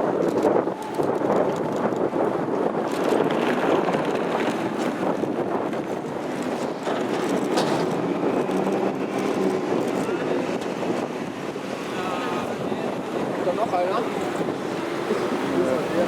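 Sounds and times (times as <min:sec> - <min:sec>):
passing cars traffic noise: 0:00.0 - 0:16.0.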